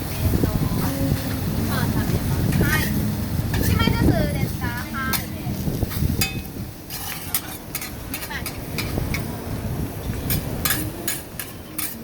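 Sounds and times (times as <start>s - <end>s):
metal spatulas scraping on griddle: 2.5s - 3.9s, 4.8s - 9.3s, 10.2s - 12.0s.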